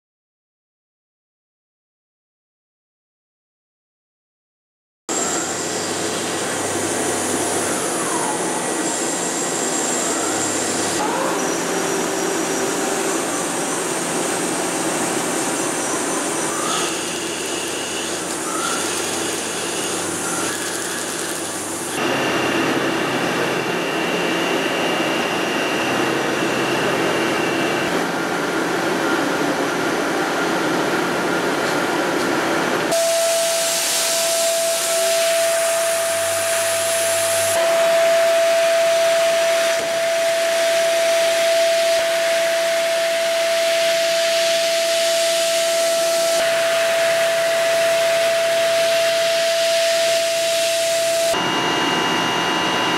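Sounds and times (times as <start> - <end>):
lathe machining hiss: 5.1 - 27.8, 32.9 - 52.1
strong steady whine: 5.1 - 52.9.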